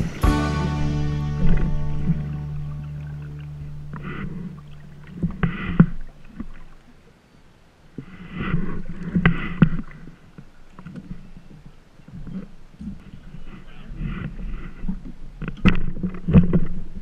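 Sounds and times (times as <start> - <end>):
held music chord: 0.0 - 5.4
water splashing against hulls: 0.0 - 7.0, 7.9 - 17.0.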